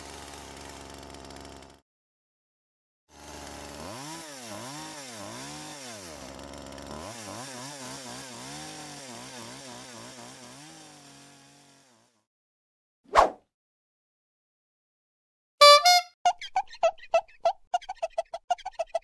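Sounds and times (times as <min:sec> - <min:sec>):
small two-stroke engine revving: 0:00.0 - 0:01.8, 0:03.1 - 0:12.3.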